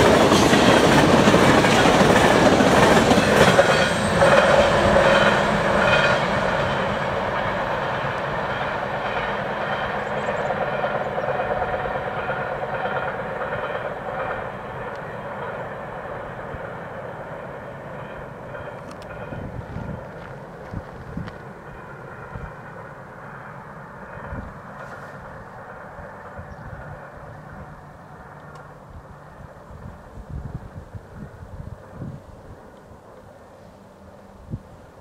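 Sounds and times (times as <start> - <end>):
wheels clicking over rail joints: 0.0 - 22.5
freight train rushing past: 0.0 - 35.0.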